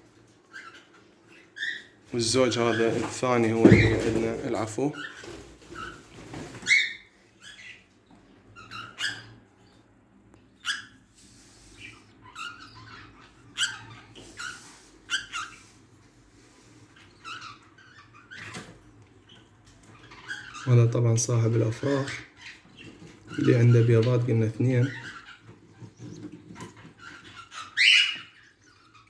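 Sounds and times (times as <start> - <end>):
budgerigars chirping: 6.6 - 7.8, 11.7 - 15.6, 19.3 - 29.0.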